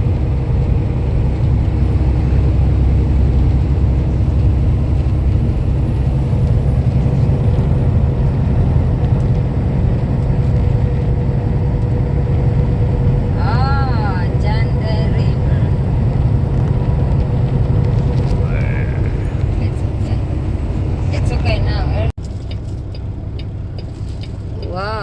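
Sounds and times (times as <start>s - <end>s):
road noise: 0.0s - 25.0s
truck engine rumble: 0.0s - 25.0s.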